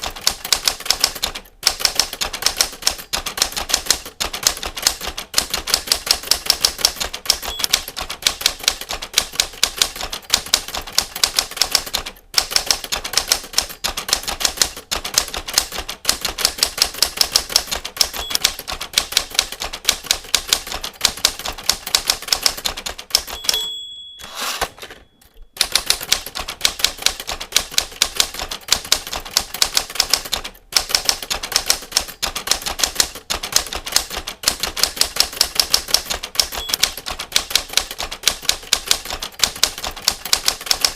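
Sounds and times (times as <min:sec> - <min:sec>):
typewriter typing: 0:00.0 - 0:40.9
typewriter bell ding: 0:07.3 - 0:08.9, 0:18.0 - 0:18.6, 0:23.1 - 0:27.2, 0:36.0 - 0:37.8.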